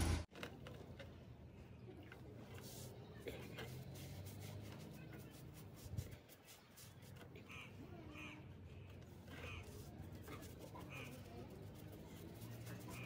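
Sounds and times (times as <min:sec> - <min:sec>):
faint bird calls: 0:07.4 - 0:09.9.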